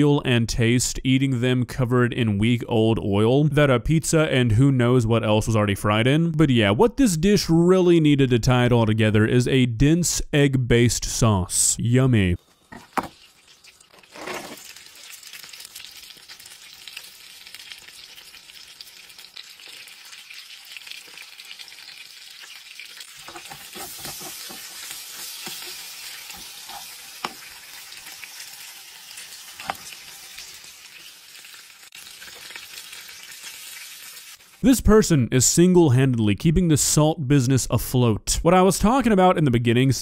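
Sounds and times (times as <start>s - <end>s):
steak and chips sizzling in oil: 12.4s - 34.6s
utensil scraping chips in pan: 12.5s - 34.6s.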